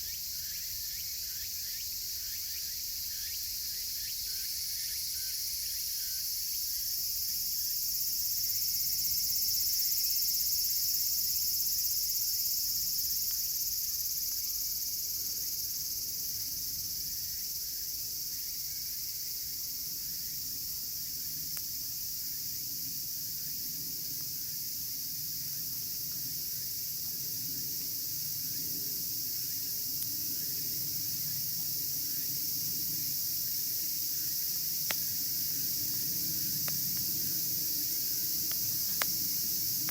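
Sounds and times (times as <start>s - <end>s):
cicadas shrilling: 0.0s - 39.9s
campfire crackling: 25.8s - 39.9s.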